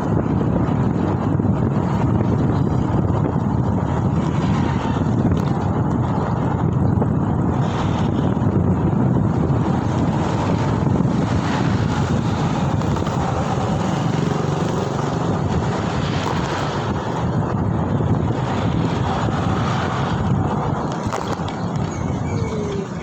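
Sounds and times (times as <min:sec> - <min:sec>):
road and traffic noise: 0:00.0 - 0:23.0
wind rushing over microphone: 0:00.0 - 0:23.0.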